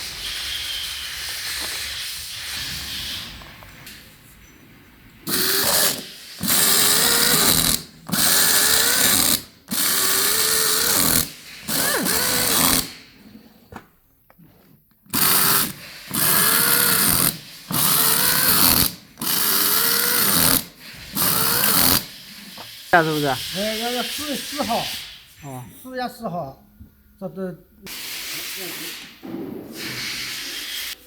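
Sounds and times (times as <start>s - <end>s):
power tool motor bursts: 5.3s - 13.0s, 15.1s - 25.2s.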